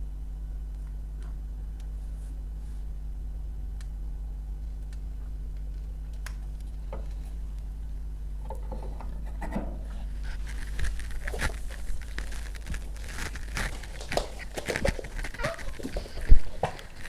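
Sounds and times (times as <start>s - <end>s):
wood kindling crackling: 0.3s - 17.0s
rustling handling noise: 4.7s - 17.0s.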